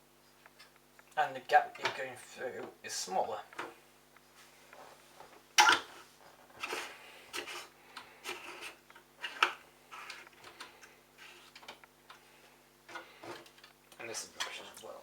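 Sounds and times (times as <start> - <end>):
faint steady hum: 0.0 - 15.0
parts scraping and clicking: 5.6 - 12.2.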